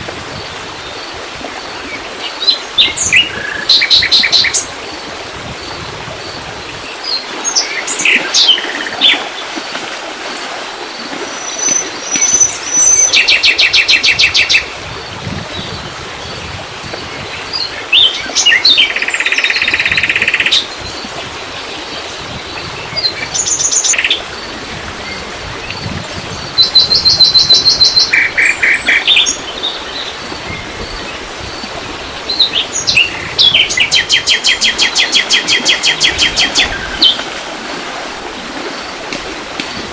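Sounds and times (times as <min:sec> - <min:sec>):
songbirds chirping and trilling: 0:11.4 - 0:37.3.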